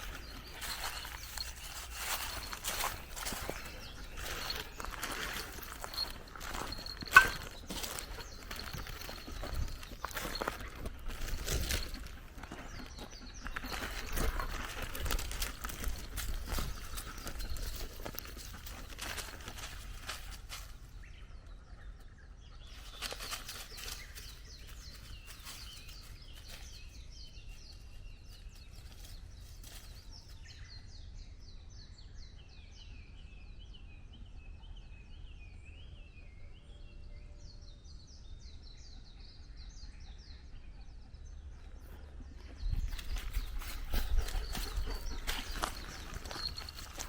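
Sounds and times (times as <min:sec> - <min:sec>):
footsteps crunching on path: 0:00.0 - 0:20.9, 0:22.7 - 0:30.2, 0:41.9 - 0:47.0
songbirds singing: 0:00.0 - 0:47.0.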